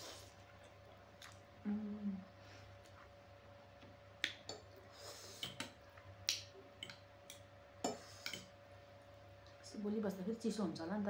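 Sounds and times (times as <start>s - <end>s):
chewing noodles with mouth clicks: 0.2s - 1.5s.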